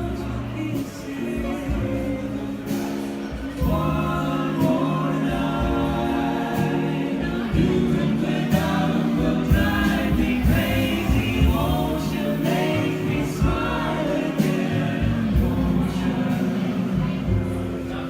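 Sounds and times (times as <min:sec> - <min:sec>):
live band playing: 0:00.0 - 0:18.0
voices singing in harmony: 0:00.0 - 0:18.0.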